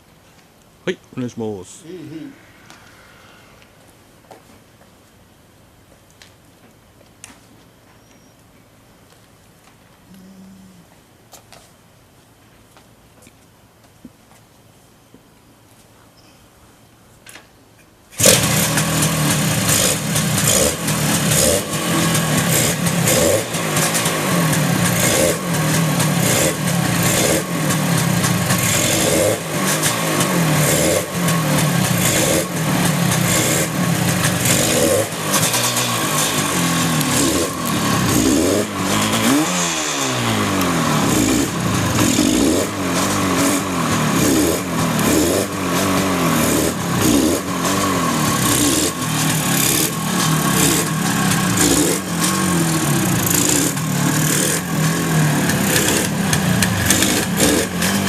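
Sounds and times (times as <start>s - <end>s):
motorcycle engine kick-started: 18.2s - 58.0s
motorcycle engine revving: 18.2s - 58.0s.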